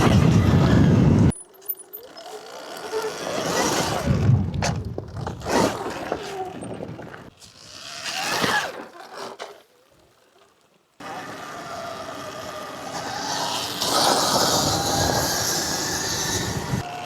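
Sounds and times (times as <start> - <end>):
electric dirt bike motor whine: 0.0 - 4.3, 11.0 - 17.0
tyres scraping on gravel: 0.0 - 9.8, 11.0 - 17.0.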